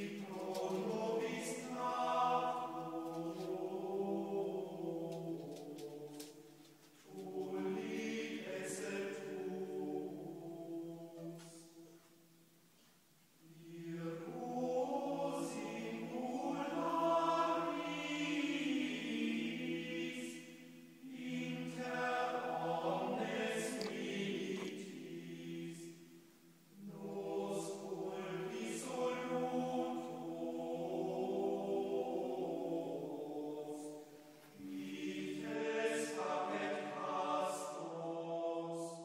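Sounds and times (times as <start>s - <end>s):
choral chanting: 0.0s - 12.4s, 13.4s - 39.0s.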